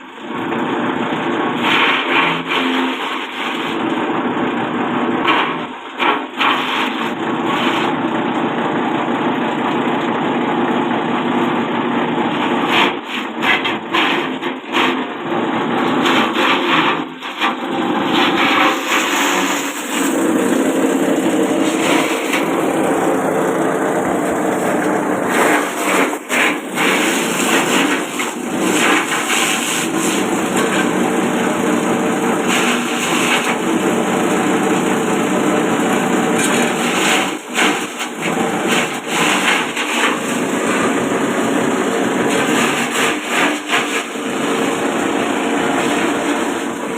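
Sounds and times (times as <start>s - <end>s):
forage chopper chopping stalks: 1.6s - 3.7s, 5.2s - 7.9s, 12.3s - 15.0s, 15.9s - 34.7s, 36.0s - 46.9s.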